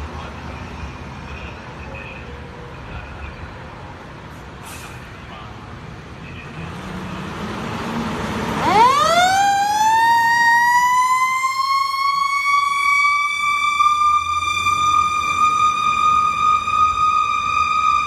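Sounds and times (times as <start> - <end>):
truck engine and road noise: 0.0 - 18.0
fire engine siren wailing: 7.2 - 18.0.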